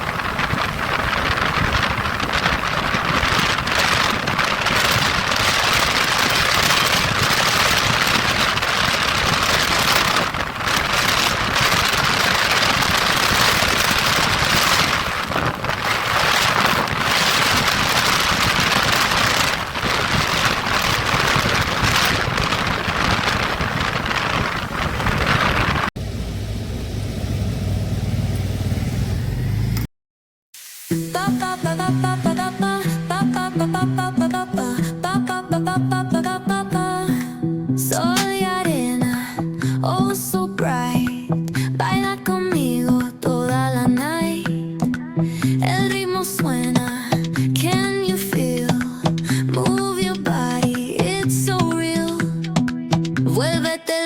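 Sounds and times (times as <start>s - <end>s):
wind rushing over microphone: 0.0s - 26.0s
motorcycle road and engine noise: 0.0s - 29.9s.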